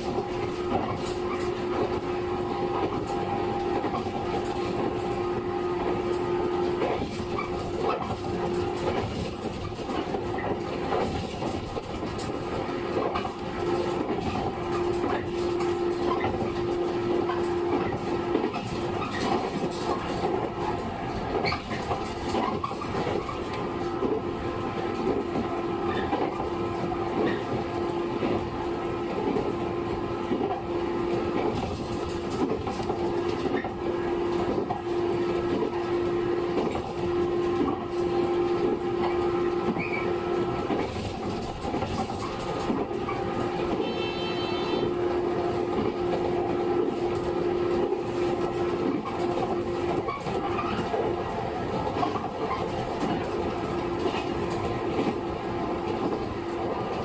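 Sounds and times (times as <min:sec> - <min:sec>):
wheels clattering over rail joints: 0:00.0 - 0:02.2, 0:06.0 - 0:29.6, 0:30.3 - 0:35.9, 0:36.5 - 0:44.8, 0:45.5 - 0:57.0
train motor and gear hum: 0:00.0 - 0:57.0
short high tone: 0:43.8 - 0:45.0.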